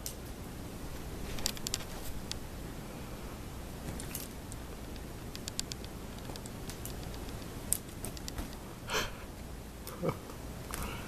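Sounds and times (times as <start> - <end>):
low room hum: 0.0 - 11.0
faint small clicks: 3.9 - 8.6.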